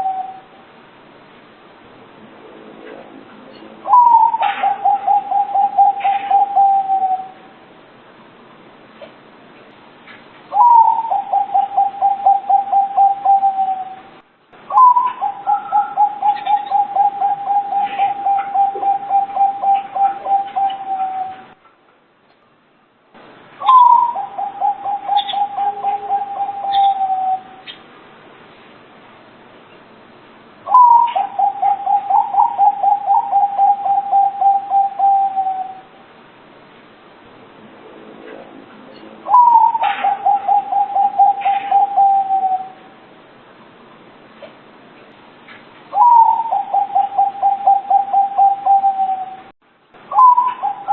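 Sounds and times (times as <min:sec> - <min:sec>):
dove cooing: 0:00.0 - 0:00.6, 0:03.8 - 0:07.5, 0:10.5 - 0:14.1, 0:14.7 - 0:21.6, 0:23.6 - 0:27.8, 0:30.7 - 0:35.9, 0:39.3 - 0:43.0, 0:45.9 - 0:49.5, 0:50.1 - 0:50.9.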